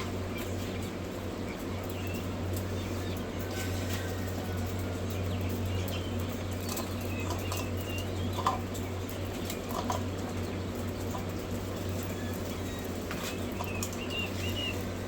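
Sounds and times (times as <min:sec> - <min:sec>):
quail chicks peeping: 0:00.0 - 0:15.0
steady low hum: 0:00.0 - 0:15.0
scratching and rustling: 0:06.3 - 0:15.0.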